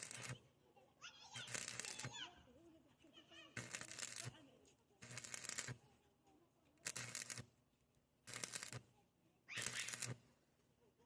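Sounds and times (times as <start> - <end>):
welding arc crackle: 0.0 - 0.4, 1.4 - 2.1, 3.6 - 4.4, 5.0 - 5.8, 6.8 - 7.5, 8.3 - 8.8, 9.6 - 10.2.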